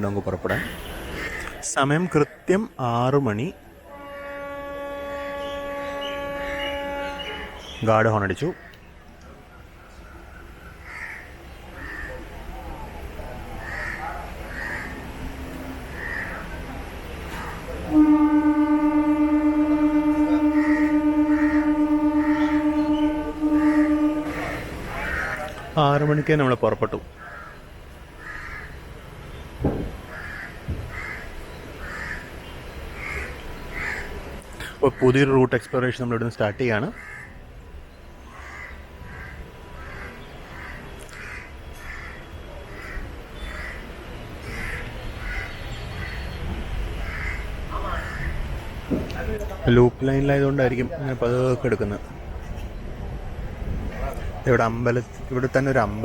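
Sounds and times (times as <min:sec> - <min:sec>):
train rumbling: 0:00.0 - 0:56.0
train horn blast: 0:03.8 - 0:08.0, 0:17.3 - 0:25.6
crows cawing: 0:10.7 - 0:12.4, 0:13.6 - 0:15.1, 0:15.9 - 0:16.5, 0:20.3 - 0:25.6, 0:27.2 - 0:27.6, 0:28.2 - 0:28.8, 0:30.1 - 0:32.4, 0:33.0 - 0:34.2, 0:36.9 - 0:37.4, 0:38.3 - 0:46.2, 0:47.0 - 0:48.5.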